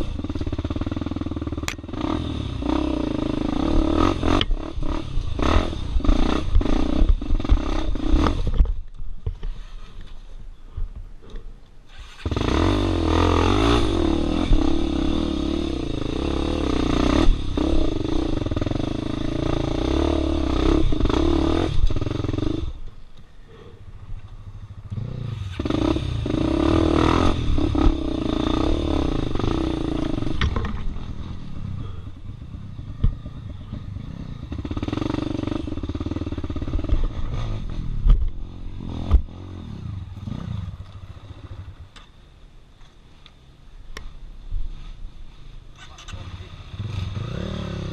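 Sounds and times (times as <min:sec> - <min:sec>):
dirt bike engine revving: 0:00.0 - 0:08.7, 0:11.9 - 0:22.9, 0:24.0 - 0:41.8, 0:45.9 - 0:47.9
clattering knocks on rough ground: 0:30.4 - 0:31.0.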